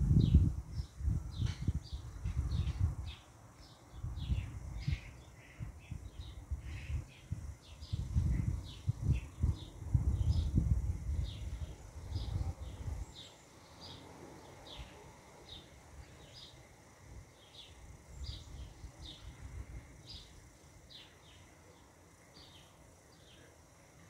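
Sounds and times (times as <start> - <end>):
wind buffeting microphone: 0.0 - 3.2, 3.9 - 13.2
bird chirping: 11.2 - 16.7, 17.4 - 19.4, 20.0 - 23.6.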